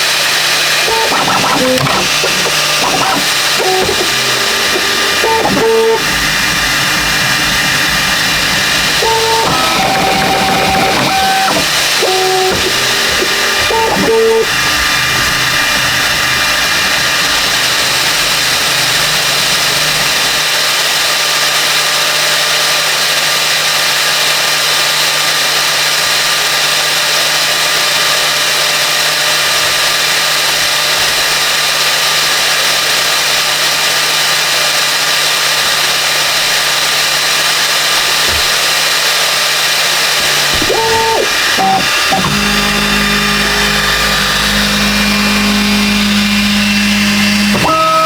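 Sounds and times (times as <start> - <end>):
mechanical whirring: 0.0 - 23.1, 26.4 - 48.0
constant low hum: 0.9 - 20.4.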